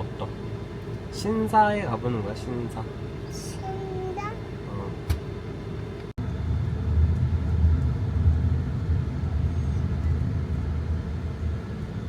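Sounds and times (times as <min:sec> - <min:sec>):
car road rumble from inside: 0:02.3 - 0:12.0.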